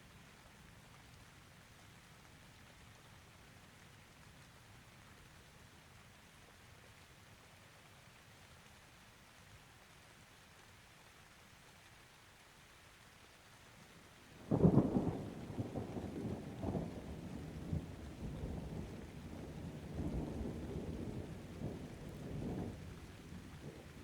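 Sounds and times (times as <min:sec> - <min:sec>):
steady rain: 0:00.0 - 0:24.0
thunder clap and rumble: 0:14.5 - 0:24.0.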